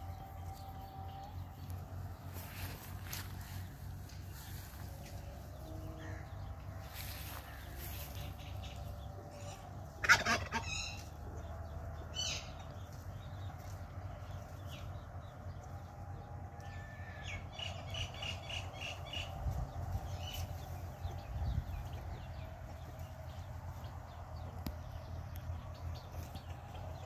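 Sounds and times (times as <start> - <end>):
low steady rumble: 0.0 - 27.0.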